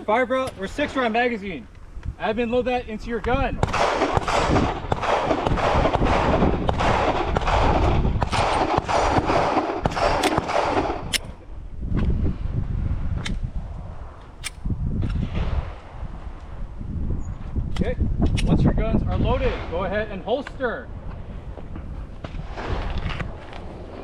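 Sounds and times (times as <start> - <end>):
gunshots: 3.6 - 11.4.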